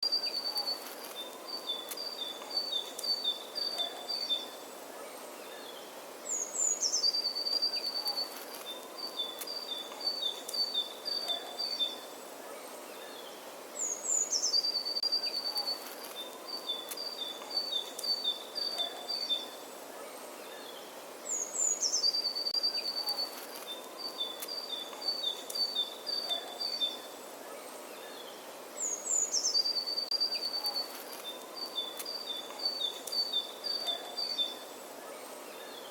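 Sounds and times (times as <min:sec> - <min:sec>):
songbird singing: 0:00.0 - 0:35.9
steady outdoor hiss: 0:00.0 - 0:35.9.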